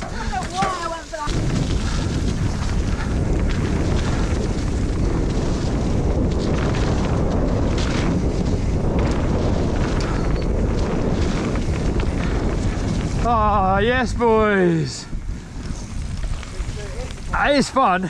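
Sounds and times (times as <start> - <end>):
bike knocks and rattles: 0.0 - 13.4
wind on microphone: 0.0 - 18.0.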